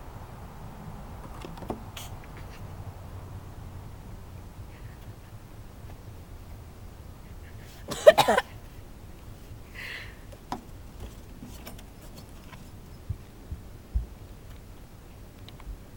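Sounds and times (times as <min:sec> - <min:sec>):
person coughing harshly: 0:07.9 - 0:08.5.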